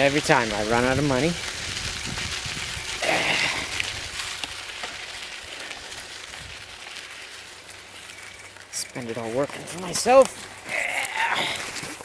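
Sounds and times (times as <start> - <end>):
wind hiss: 0.0 - 8.3
bicycle tyres rolling: 0.0 - 12.0.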